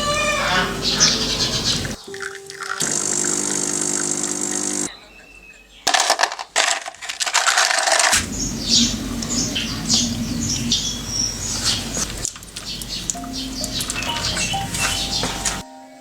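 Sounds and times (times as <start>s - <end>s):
machine hum: 0.0s - 2.0s, 2.8s - 4.9s, 8.2s - 15.6s
small birds chirping: 0.0s - 5.9s, 8.2s - 16.0s
clattering and rustling: 5.9s - 10.2s, 11.5s - 15.6s
low steady rumble: 8.2s - 14.1s.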